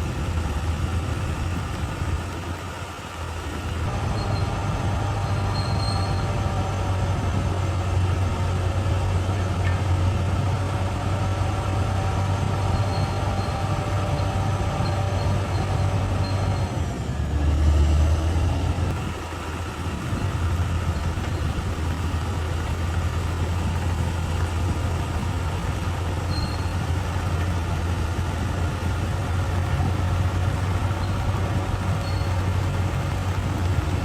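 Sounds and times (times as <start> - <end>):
bulldozer diesel engine running: 0.0 - 34.0
steel tracks squealing: 3.3 - 10.2, 11.0 - 18.2, 26.0 - 27.6, 29.7 - 34.0.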